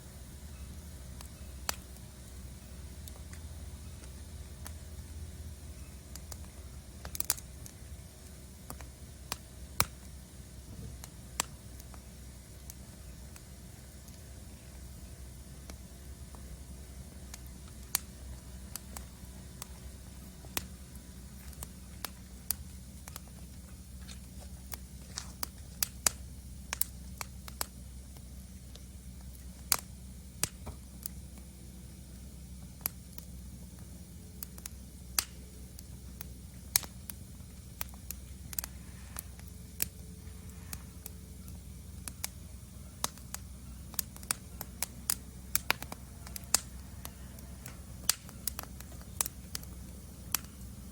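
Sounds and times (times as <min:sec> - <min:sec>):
low steady rumble: 0:00.0 - 0:50.9
wood fire crackling: 0:00.0 - 0:50.9.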